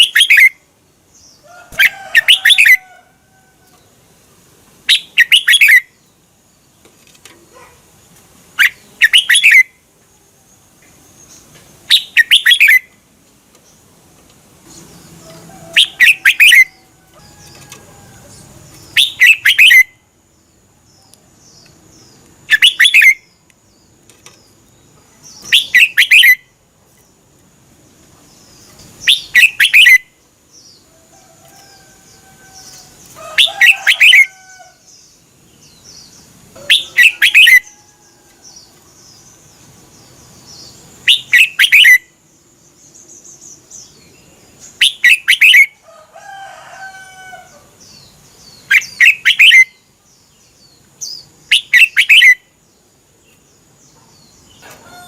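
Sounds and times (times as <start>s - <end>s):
bulbul singing bright phrases: 0.0s - 2.8s, 4.8s - 6.8s, 8.5s - 9.9s, 10.6s - 13.1s, 14.6s - 27.1s, 28.2s - 30.9s, 34.9s - 45.8s, 47.8s - 54.6s.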